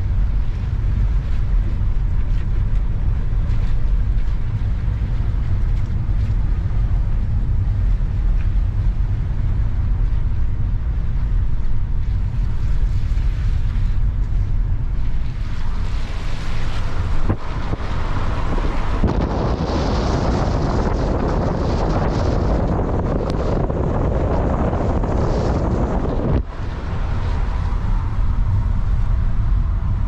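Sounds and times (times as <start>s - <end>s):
strong wind buffeting microphone: 0.0s - 30.0s
surf breaking: 12.2s - 30.0s.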